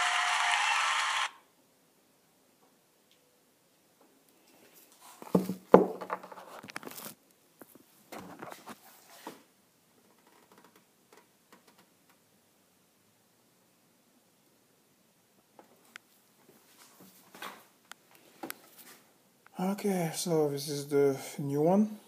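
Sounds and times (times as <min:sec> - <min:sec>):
rustling and scraping of tools: 0:04.4 - 0:09.5, 0:15.8 - 0:19.1.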